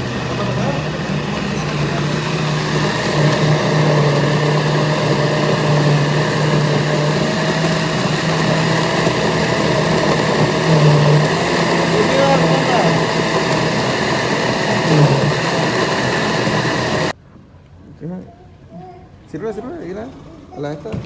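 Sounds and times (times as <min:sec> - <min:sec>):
electric blender running: 0:00.0 - 0:17.2.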